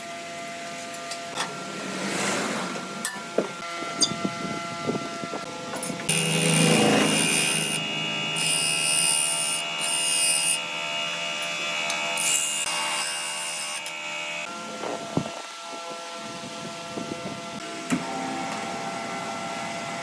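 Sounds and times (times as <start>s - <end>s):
power tool cutting wood: 5.5s - 15.6s.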